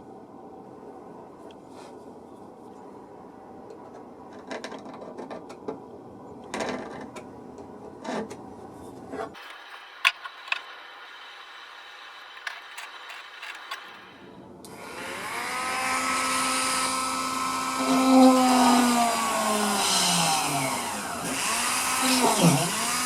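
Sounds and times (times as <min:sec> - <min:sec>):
steady background hiss: 0:07.3 - 0:15.2
small mechanical parts clicking: 0:09.4 - 0:10.7, 0:12.3 - 0:14.2.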